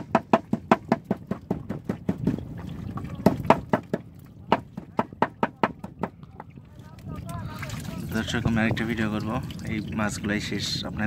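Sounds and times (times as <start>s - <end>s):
rapid sharp knocks: 0.0s - 2.4s, 3.2s - 6.2s.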